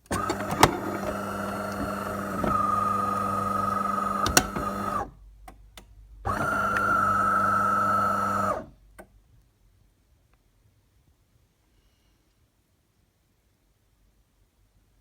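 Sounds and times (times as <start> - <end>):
coffee machine humming: 0.0 - 5.2, 6.3 - 8.7
coffee machine clicks: 0.1 - 3.0, 3.8 - 5.0.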